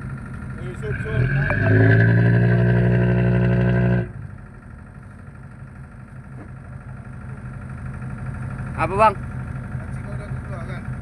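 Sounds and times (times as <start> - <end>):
loud droning tone: 0.0 - 4.9
boat engine idling: 0.0 - 11.0.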